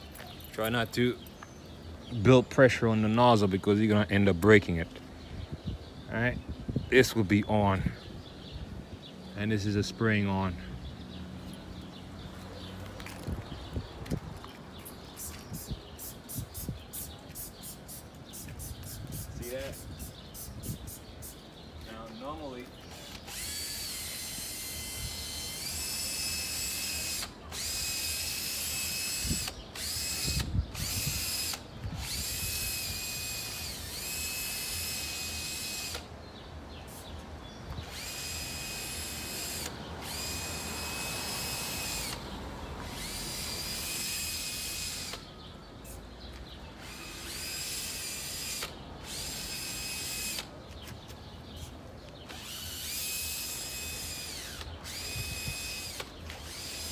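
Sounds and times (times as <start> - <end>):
spray bottle motor whine: 37.9 - 45.2.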